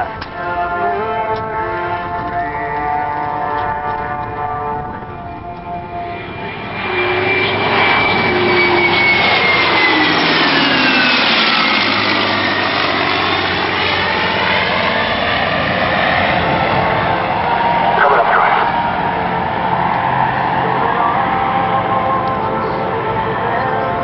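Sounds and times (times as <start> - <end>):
jet engine roar: 0.0 - 24.0
high whine dropping in pitch: 17.9 - 18.8.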